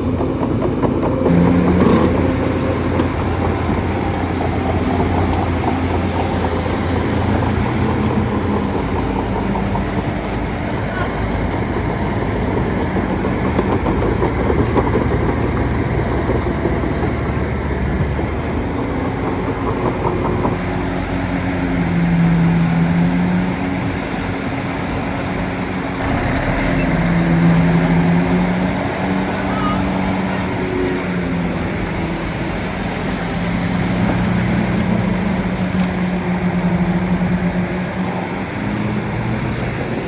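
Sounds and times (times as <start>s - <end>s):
heavy machinery engine humming: 0.0s - 16.0s, 26.0s - 32.3s.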